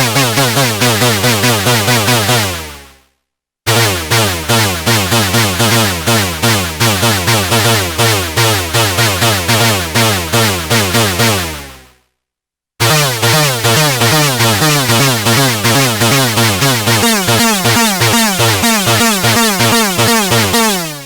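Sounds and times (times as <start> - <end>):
synthesizer sliding notes: 12.8 - 21.0.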